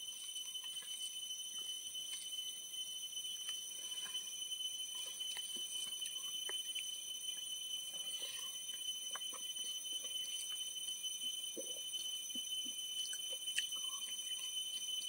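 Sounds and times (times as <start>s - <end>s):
person chewing with wet clicks: 0.6s - 1.1s, 3.4s - 4.2s, 4.9s - 15.0s.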